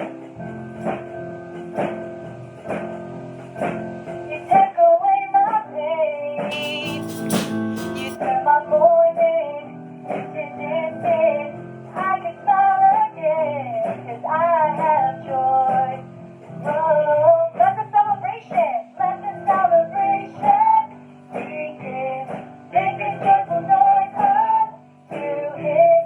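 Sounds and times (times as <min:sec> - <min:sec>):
person singing: 0:04.4 - 0:16.0, 0:16.7 - 0:26.0
guitar accompaniment: 0:06.4 - 0:26.0.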